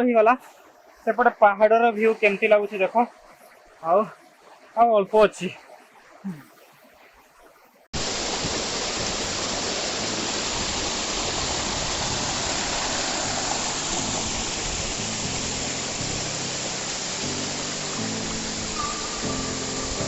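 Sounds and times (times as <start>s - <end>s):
waterfall rushing: 8.0s - 20.0s.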